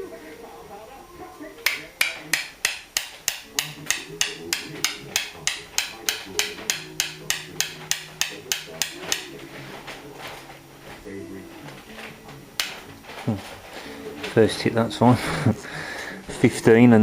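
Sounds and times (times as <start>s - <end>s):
hammer tapping key in lock: 1.7s - 9.3s.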